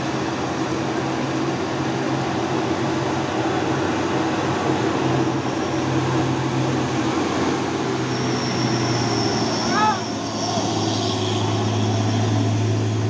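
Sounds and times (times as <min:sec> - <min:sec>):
truck diesel engine labouring: 0:00.0 - 0:13.0.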